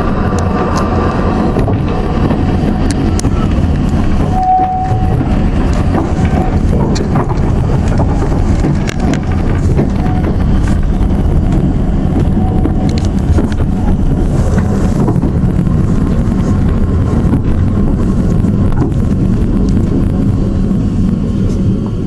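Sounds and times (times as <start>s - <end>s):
train carriage rumble and rattle: 0.0s - 22.0s
wind buffeting microphone: 0.0s - 22.0s
scattered clicks: 0.2s - 22.0s.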